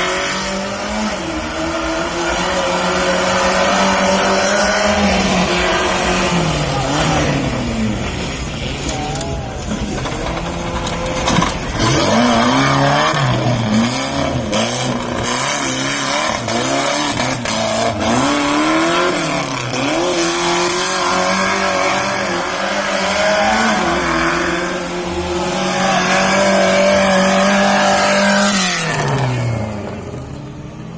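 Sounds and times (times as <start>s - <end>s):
off-road vehicle engine revving: 0.0s - 30.9s.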